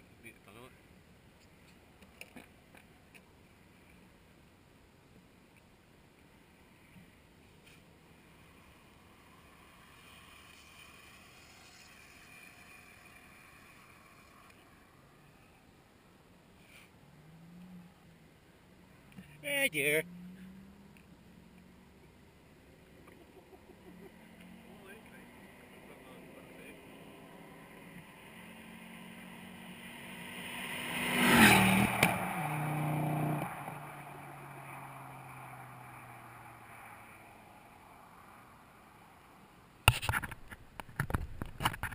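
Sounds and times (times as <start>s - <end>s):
faint distant vehicle hum: 0.0s - 39.8s
car exhaust driving past: 19.1s - 39.4s
exhaust crack: 31.4s - 34.9s.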